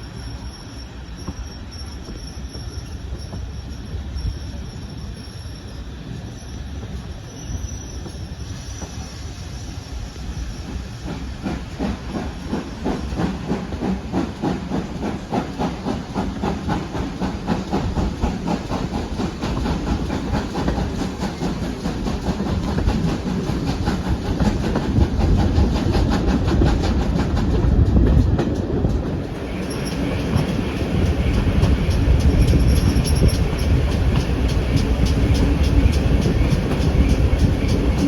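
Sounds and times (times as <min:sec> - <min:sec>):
hiss of steam: 0:00.0 - 0:27.3
steam train running: 0:00.0 - 0:38.0.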